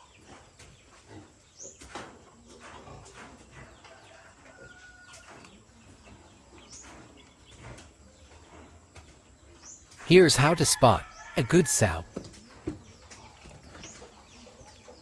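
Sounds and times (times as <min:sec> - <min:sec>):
birds chirping: 0:03.6 - 0:15.0.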